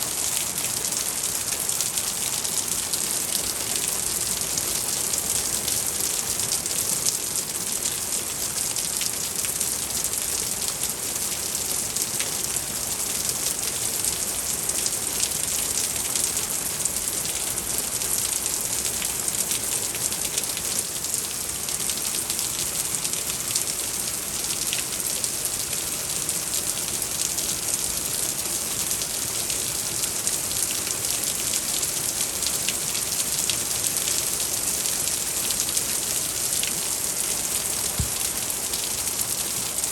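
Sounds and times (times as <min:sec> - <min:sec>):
heavy rain pouring: 0:00.0 - 0:39.9
raindrops ticking on hard surface: 0:37.8 - 0:38.5.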